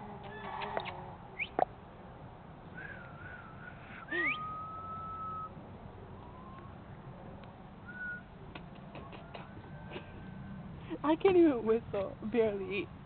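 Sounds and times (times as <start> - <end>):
person whistling: 4.1 - 5.5, 7.9 - 8.2.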